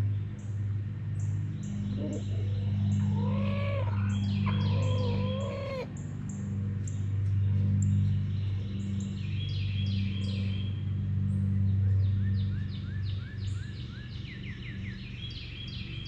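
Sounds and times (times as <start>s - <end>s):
steady low hum: 0.0s - 16.0s
chickens calling: 1.9s - 6.0s.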